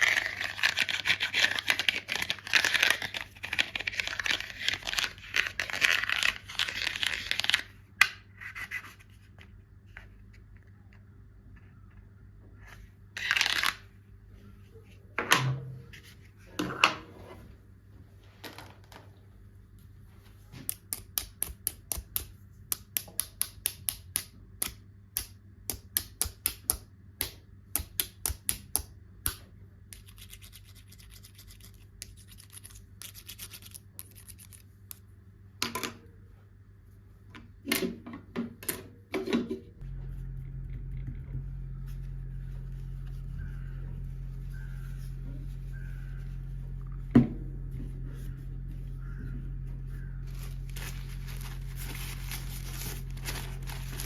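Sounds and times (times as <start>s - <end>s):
rubbing and scratching: 0.0s - 7.7s, 29.9s - 34.7s, 48.0s - 54.0s
steady low hum: 19.1s - 54.0s.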